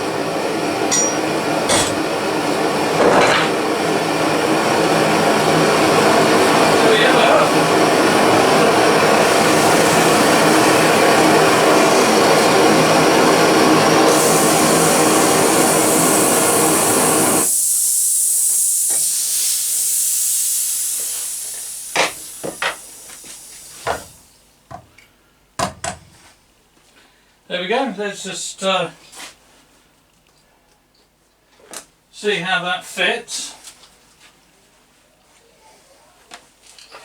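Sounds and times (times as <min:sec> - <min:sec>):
blow lamp burning roar: 0:00.0 - 0:24.4
high hiss: 0:08.9 - 0:24.4.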